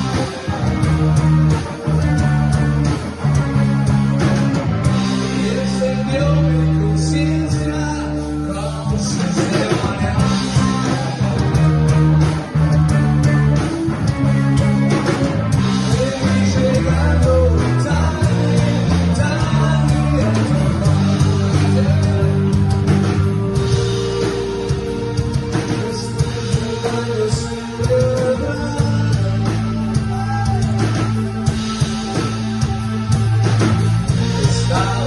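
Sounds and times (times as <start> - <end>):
rock song with guitar: 0.0 - 35.0
person singing: 5.1 - 13.7, 15.6 - 31.8, 34.0 - 35.0.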